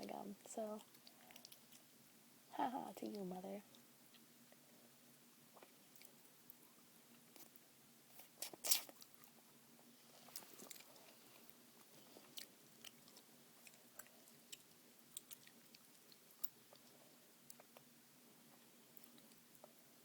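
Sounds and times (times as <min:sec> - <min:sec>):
gum chewing with wet clicks: 0:00.8 - 0:01.9, 0:10.3 - 0:11.2, 0:12.1 - 0:17.9, 0:18.9 - 0:19.8.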